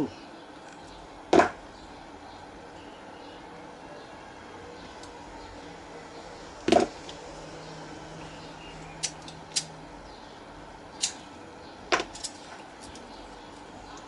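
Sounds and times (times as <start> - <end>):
small tools clicking and knocking: 11.9 - 13.1.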